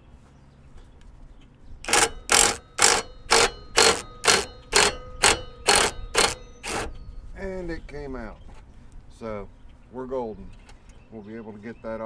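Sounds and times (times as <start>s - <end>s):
ratchet wrench clicking: 1.9s - 6.9s.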